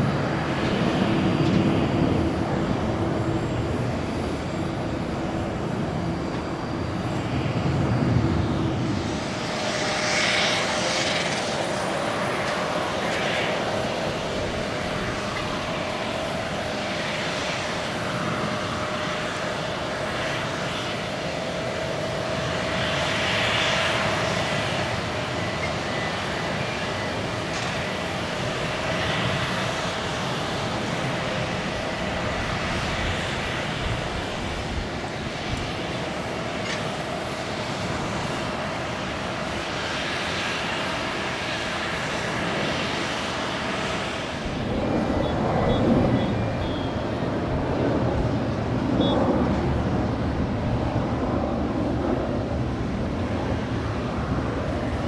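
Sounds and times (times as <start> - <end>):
jet engines at takeoff power: 0.0 - 55.0.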